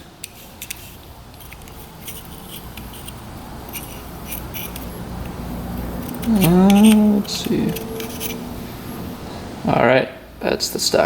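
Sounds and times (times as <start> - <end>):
measuring tool clicks and scrapes: 0.2 - 8.4.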